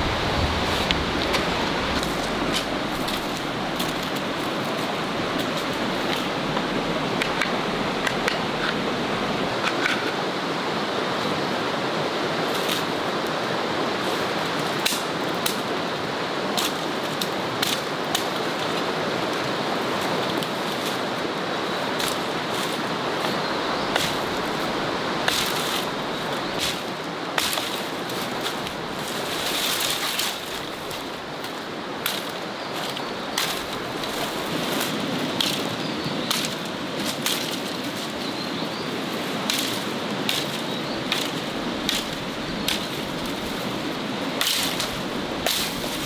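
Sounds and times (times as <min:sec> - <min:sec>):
steady outdoor rushing: 0:00.0 - 0:09.7.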